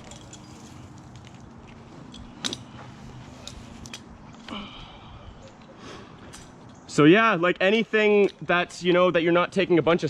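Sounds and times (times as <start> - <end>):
faint clinks and clicks: 0.0 - 4.5.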